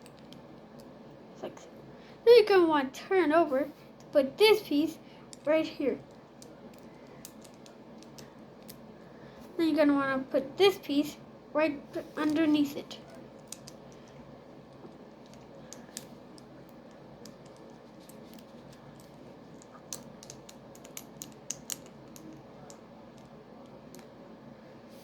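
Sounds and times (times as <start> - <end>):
plastic bricks clicking: 6.4 - 8.8, 13.4 - 14.2, 19.0 - 22.4.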